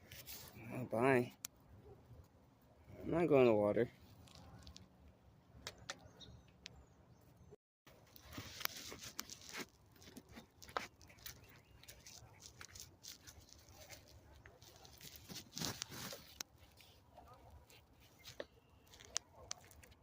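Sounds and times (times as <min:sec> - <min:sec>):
faint rustling with crackles: 0:07.9 - 0:20.0.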